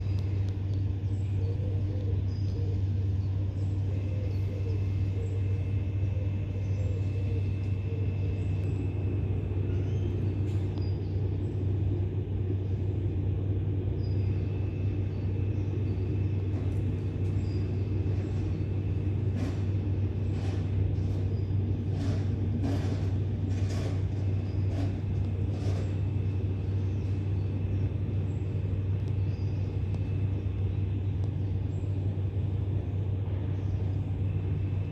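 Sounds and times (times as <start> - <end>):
low mechanical rumble: 0.0 - 34.9.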